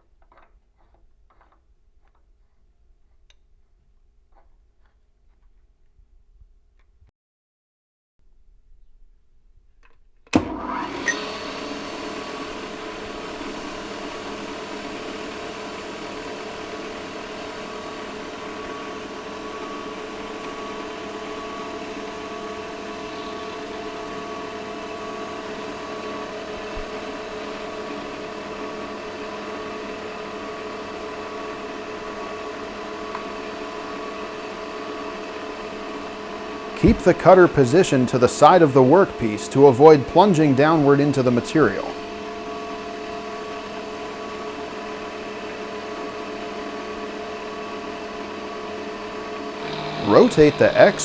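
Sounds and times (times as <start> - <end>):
milling machine motor whine: 10.4 - 51.0.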